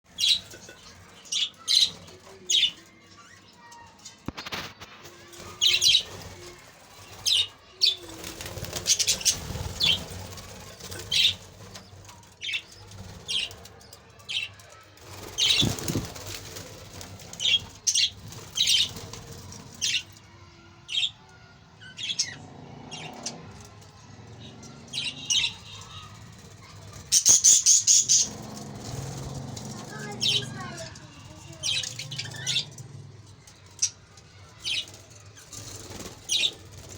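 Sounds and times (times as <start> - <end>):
wings flapping: 4.2 - 20.2, 25.0 - 36.9.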